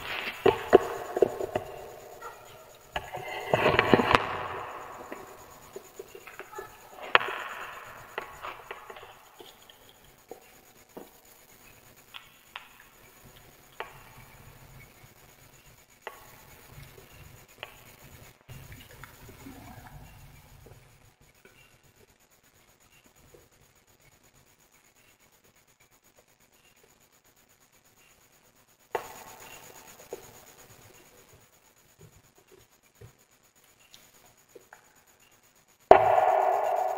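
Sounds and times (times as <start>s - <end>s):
wood fire crackling: 0.0s - 19.6s.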